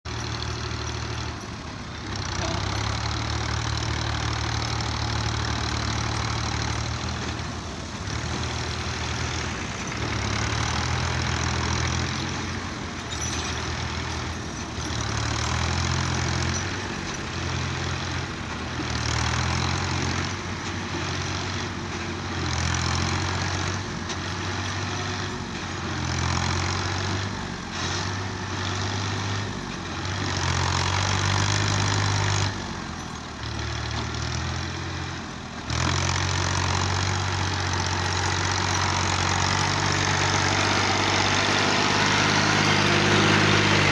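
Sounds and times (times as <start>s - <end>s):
tractor diesel engine revving: 0.0s - 43.9s.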